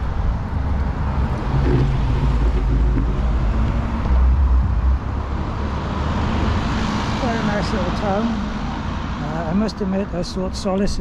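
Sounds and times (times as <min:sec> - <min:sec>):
wind on microphone: 0:00.0 - 0:07.2
motor traffic: 0:00.0 - 0:11.0
road noise: 0:00.0 - 0:11.0.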